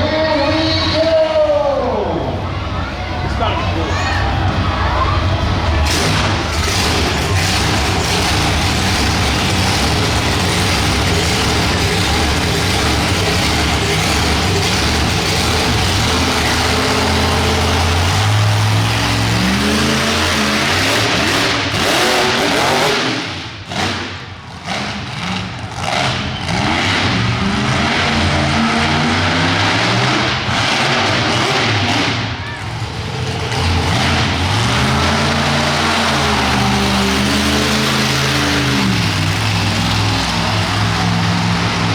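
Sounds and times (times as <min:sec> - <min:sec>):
truck engine revving: 0:02.2 - 0:41.9.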